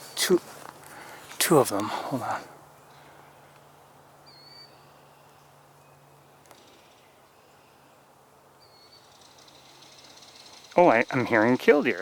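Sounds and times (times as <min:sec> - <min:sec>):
woodland background: 0:00.0 - 0:12.0
distant bird call: 0:02.8 - 0:12.0.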